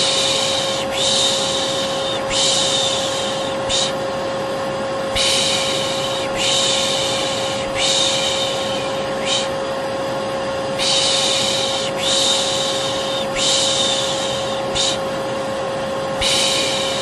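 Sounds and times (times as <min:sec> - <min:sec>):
person shushing: 0:00.0 - 0:04.0, 0:05.1 - 0:09.6, 0:10.8 - 0:15.1, 0:16.2 - 0:17.0
vacuum cleaner whining: 0:00.0 - 0:17.0.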